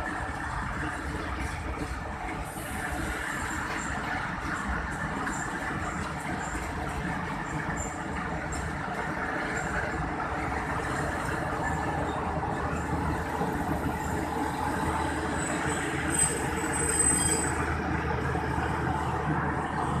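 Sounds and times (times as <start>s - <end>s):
train rumbling along track: 0.0s - 20.0s
high squeal: 14.0s - 17.8s.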